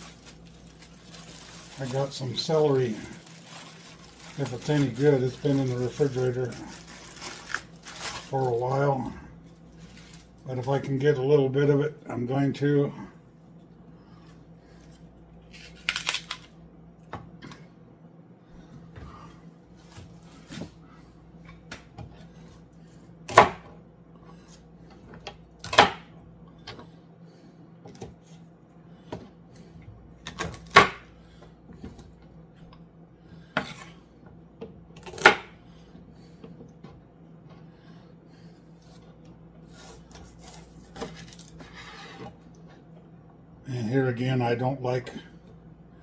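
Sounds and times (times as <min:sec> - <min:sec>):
knife chopping on cutting board: 0:23.3 - 0:23.7.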